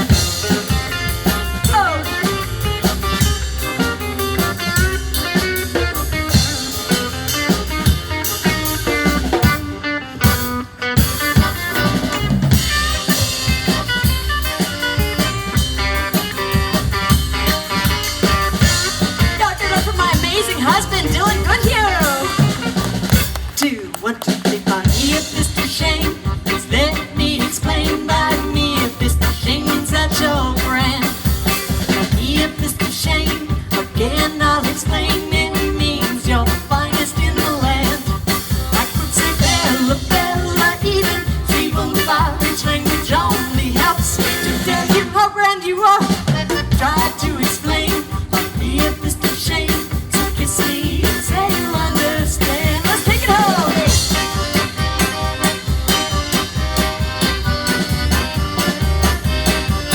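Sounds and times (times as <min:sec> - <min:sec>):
live swing dance band: 0:00.0 - 0:59.9.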